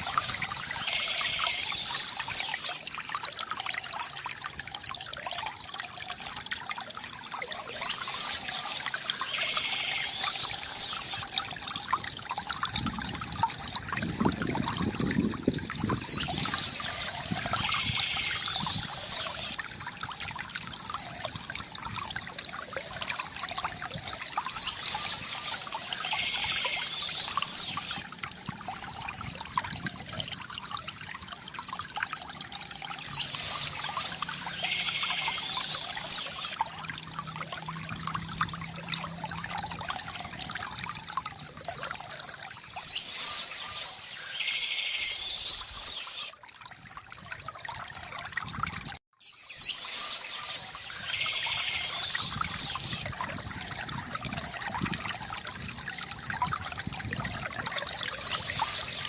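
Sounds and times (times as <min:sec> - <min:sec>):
high bird song: 0:00.0 - 0:02.8, 0:07.5 - 0:11.4, 0:15.8 - 0:19.6, 0:24.2 - 0:28.0, 0:33.0 - 0:36.6, 0:42.6 - 0:46.3, 0:49.2 - 0:53.1, 0:58.0 - 0:59.0
stream water trickling: 0:00.0 - 0:59.0.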